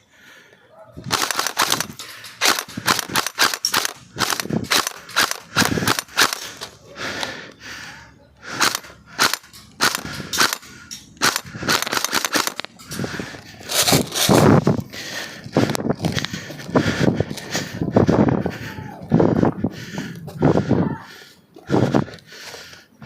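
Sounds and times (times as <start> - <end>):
airsoft rifles firing: 1.0 - 6.7, 8.5 - 14.4.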